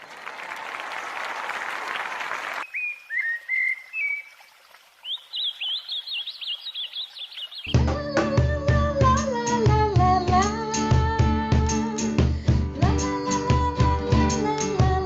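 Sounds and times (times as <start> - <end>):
songbird chirping and trilling: 2.6 - 8.4.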